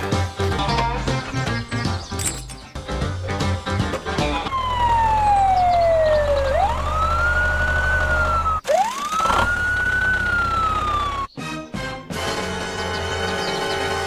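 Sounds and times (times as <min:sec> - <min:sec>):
siren wailing: 0:04.4 - 0:11.4.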